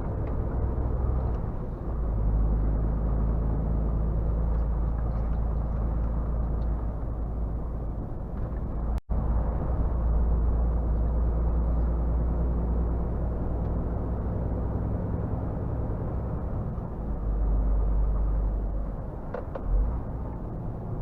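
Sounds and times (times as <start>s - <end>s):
road noise: 0.0s - 21.0s.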